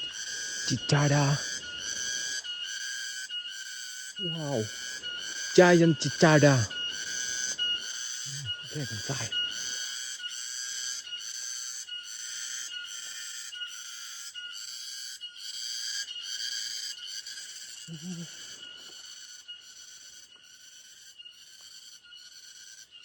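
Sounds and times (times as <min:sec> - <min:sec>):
cicada buzzing: 0:00.0 - 0:23.0.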